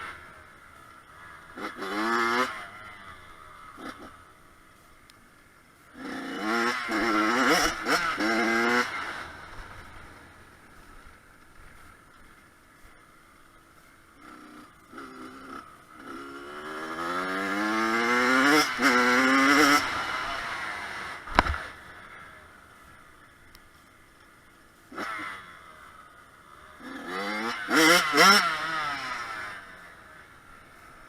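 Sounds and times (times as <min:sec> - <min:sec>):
motorcycle engine revving: 0:00.0 - 0:04.4, 0:05.9 - 0:10.4, 0:14.2 - 0:22.4, 0:24.9 - 0:31.0
sharp click: 0:21.2 - 0:21.7.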